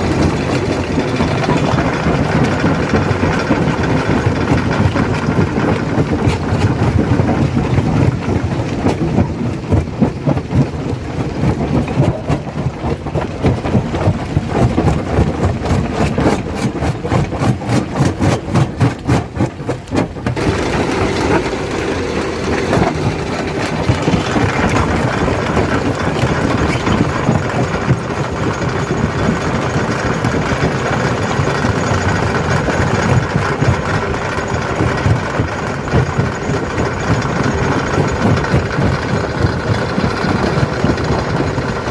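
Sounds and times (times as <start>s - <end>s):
stone crusher engine running: 0.0s - 41.9s.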